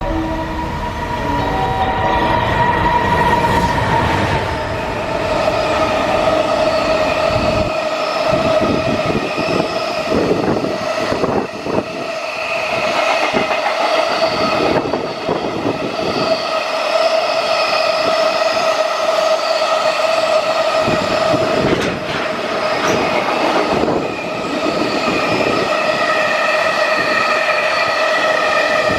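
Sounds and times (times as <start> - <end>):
high-pitched whine: 0.0 - 28.9
train wheels clattering over rail joints: 21.5 - 23.9.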